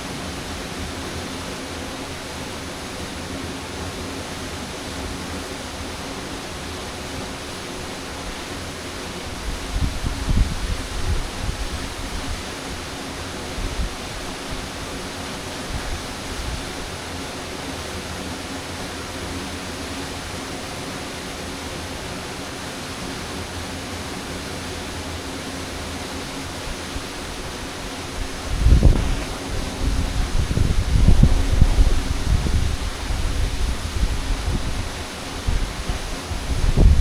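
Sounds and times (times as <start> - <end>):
waterfall rushing: 0.0 - 37.0
wind buffeting microphone: 9.3 - 12.8, 28.0 - 37.0.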